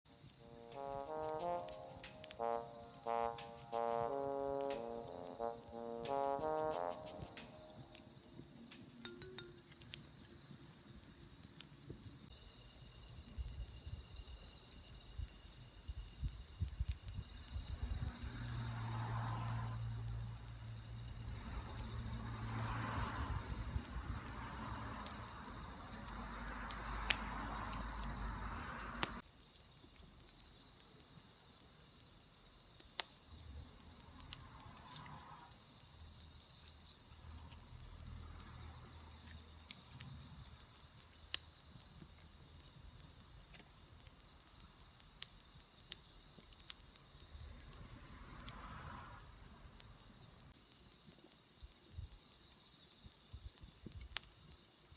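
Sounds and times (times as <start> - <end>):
crickets chirring: 0.1 - 54.9.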